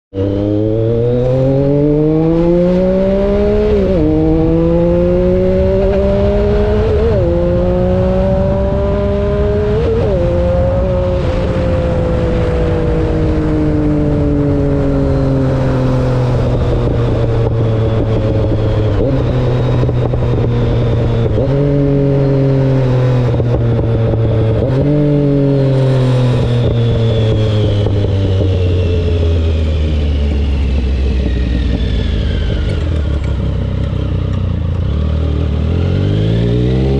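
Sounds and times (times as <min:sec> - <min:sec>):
motorcycle engine accelerating: 0:00.1 - 0:36.9.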